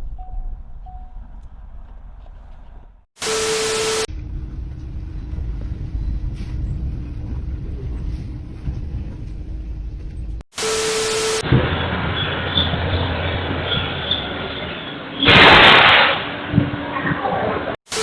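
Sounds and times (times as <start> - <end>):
vehicle low rumble: 0.0 - 3.0, 4.1 - 10.4
loud hiss bursts: 15.3 - 16.2.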